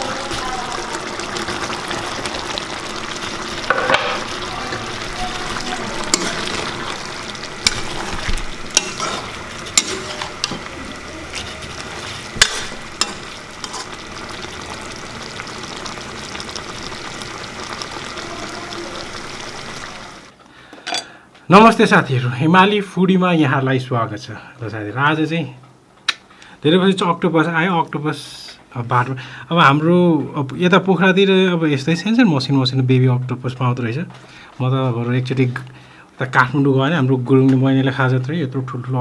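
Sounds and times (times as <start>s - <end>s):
food sizzling in a pan: 0.0s - 20.4s
spatula scraping against pan: 3.7s - 14.0s.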